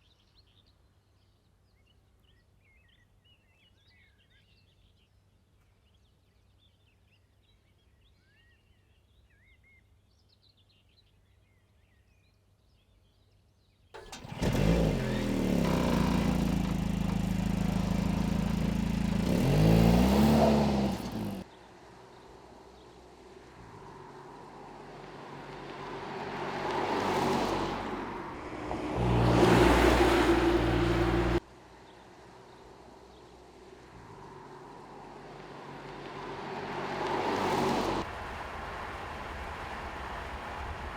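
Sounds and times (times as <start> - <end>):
car engine revving: 14.0 - 21.5, 23.7 - 31.4.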